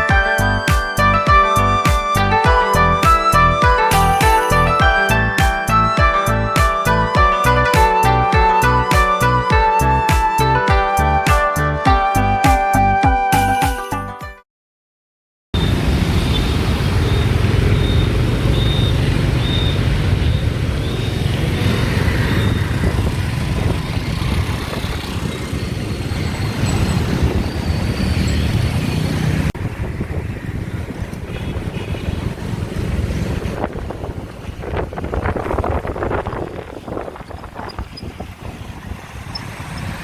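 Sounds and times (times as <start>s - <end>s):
passing vehicles: 15.6s - 40.0s.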